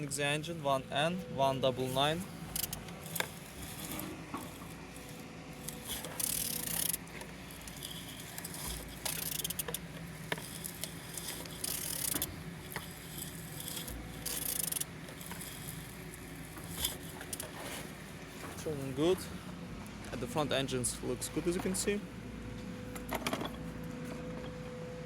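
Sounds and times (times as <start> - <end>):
metallic scraping and rattling: 1.0 - 19.4, 21.1 - 24.6
engine turned over by hand: 2.0 - 19.2.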